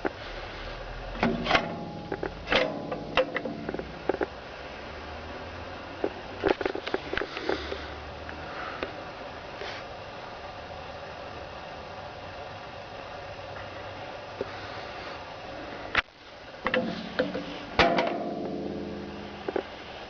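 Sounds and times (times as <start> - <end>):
metal knocks and clanks: 1.2 - 4.2, 16.7 - 19.1.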